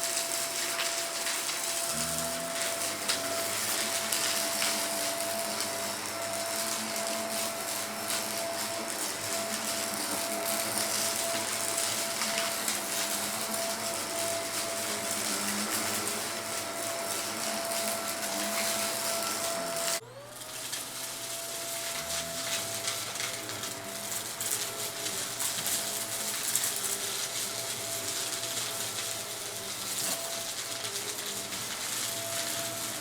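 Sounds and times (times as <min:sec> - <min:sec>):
vacuum cleaner motor whine: 0:00.0 - 0:33.0.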